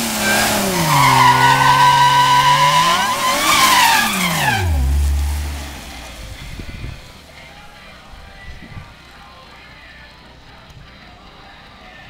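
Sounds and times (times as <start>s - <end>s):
tyres squealing: 0.0s - 7.2s
car engine revving: 0.0s - 8.4s.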